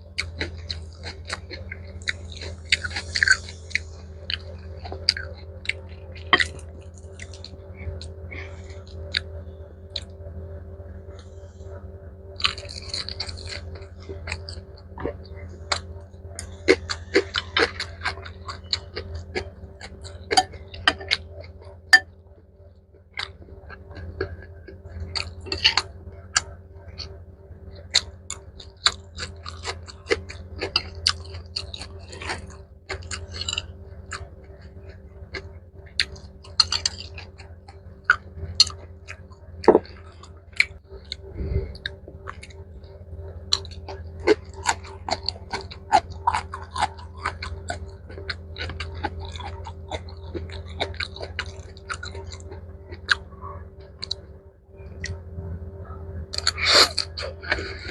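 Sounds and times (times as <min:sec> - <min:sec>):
steady low hum: 0:00.0 - 0:57.9
close chewing with wet mouth clicks: 0:00.2 - 0:09.3, 0:12.4 - 0:22.1, 0:27.8 - 0:54.2, 0:56.3 - 0:57.9.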